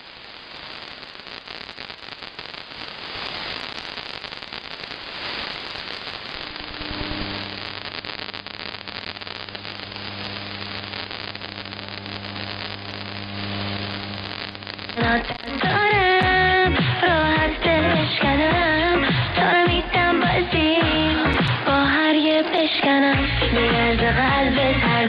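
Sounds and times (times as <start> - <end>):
radio static with crackle: 0.0 - 25.0
radio music tone: 5.1 - 25.0.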